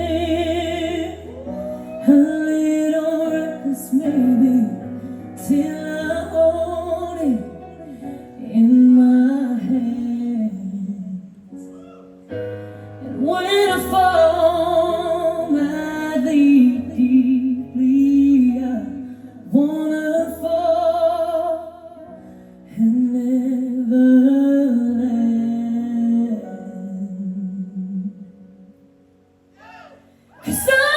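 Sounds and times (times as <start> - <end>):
bass notes: 0.0 - 1.7
woman singing a ballad: 0.0 - 11.5, 12.5 - 28.6, 30.3 - 30.9.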